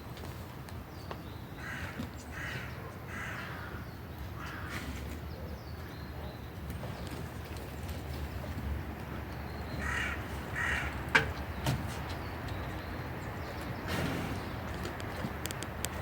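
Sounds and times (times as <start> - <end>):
crow cawing: 1.6 - 3.8, 9.8 - 11.0.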